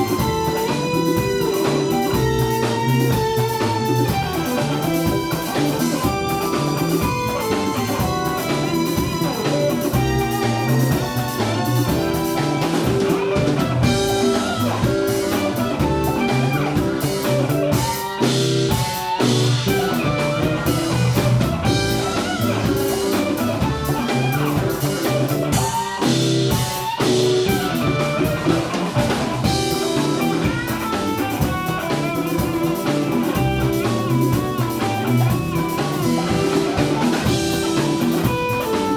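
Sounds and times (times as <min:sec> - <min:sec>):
bluesy band music: 0:00.0 - 0:38.9.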